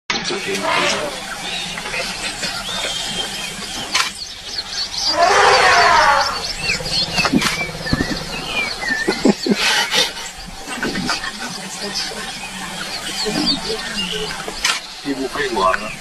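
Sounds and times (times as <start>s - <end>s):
loud animal call: 0.3s - 16.0s
high animal chirps: 0.5s - 15.1s
sharp clicks: 3.8s - 4.6s.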